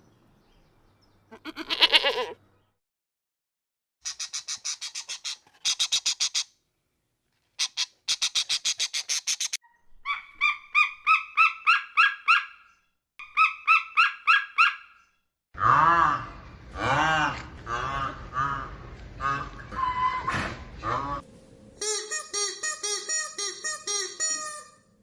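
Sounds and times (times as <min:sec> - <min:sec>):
bird chattering calls: 0:04.0 - 0:06.5, 0:07.6 - 0:09.6.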